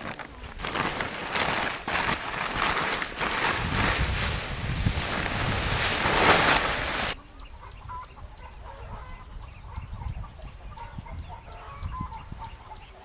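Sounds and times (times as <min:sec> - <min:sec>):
wind on microphone: 0:00.0 - 0:13.0
chickens clucking and peeping: 0:07.2 - 0:13.0.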